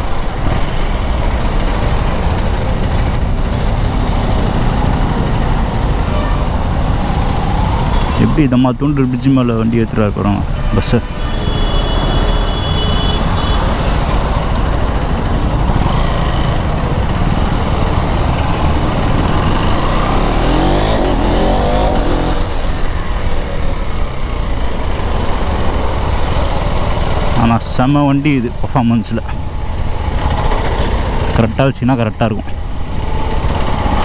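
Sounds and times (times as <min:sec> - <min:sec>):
wind and road noise: 0:00.0 - 0:34.0
motorcycle engine running: 0:10.5 - 0:27.4
engine note sweeping up and down: 0:15.4 - 0:23.2.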